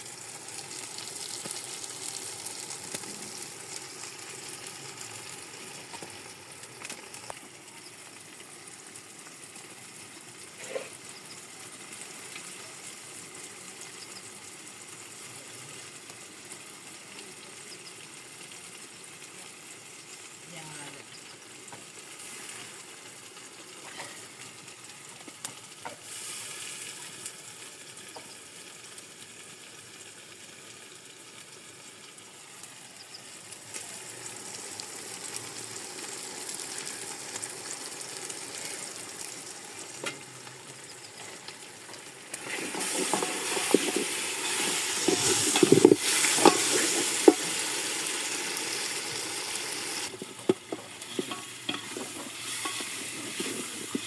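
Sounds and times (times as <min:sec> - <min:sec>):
food sizzling in a pot: 0:00.0 - 0:54.0.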